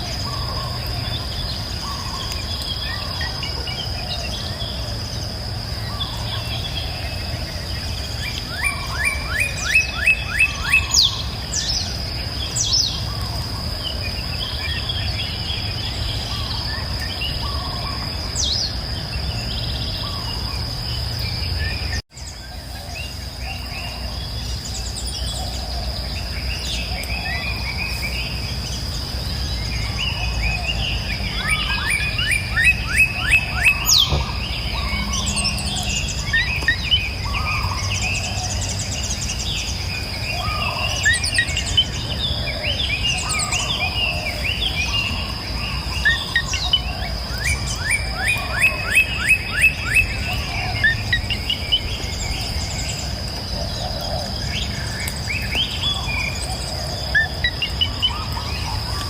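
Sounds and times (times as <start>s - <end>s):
songbirds singing and chirping: 0.0s - 59.0s
high-pitched insect drone: 26.6s - 59.0s.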